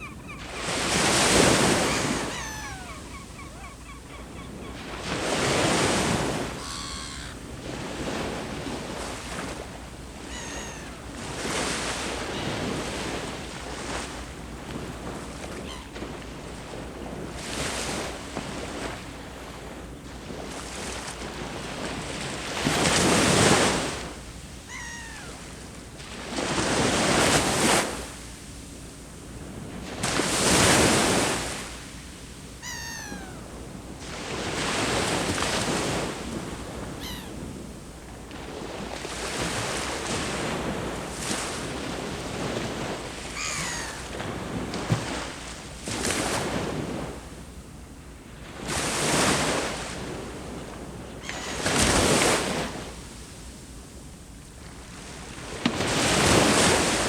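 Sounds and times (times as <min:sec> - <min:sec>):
bird calling falling notes: 0:00.0 - 0:04.9, 0:06.4 - 0:07.4, 0:10.2 - 0:11.2, 0:24.7 - 0:25.5, 0:32.6 - 0:33.6, 0:37.0 - 0:37.5, 0:43.4 - 0:44.2
sea waves breaking on shore: 0:00.0 - 0:47.6, 0:48.2 - 0:53.9, 0:54.6 - 0:57.0.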